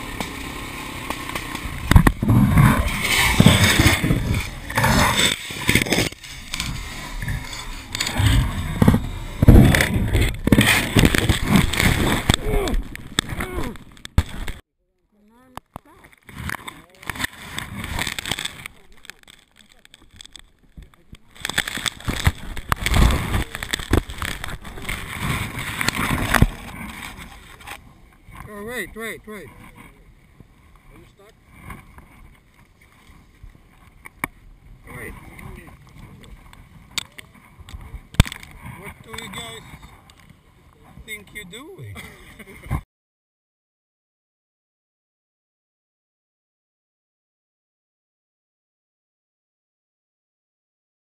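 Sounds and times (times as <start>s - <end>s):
knocks and jolts: 0.0s - 14.6s, 16.3s - 27.8s
motorcycle engine revving: 0.0s - 14.6s
wind noise: 1.6s - 14.6s, 19.9s - 28.6s.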